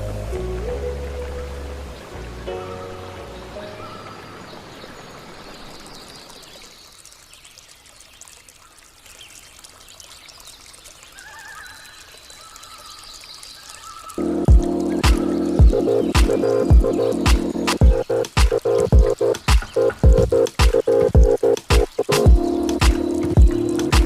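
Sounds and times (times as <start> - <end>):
water flowing and trickling: 0.0 - 24.0
faint music tones: 14.2 - 24.0.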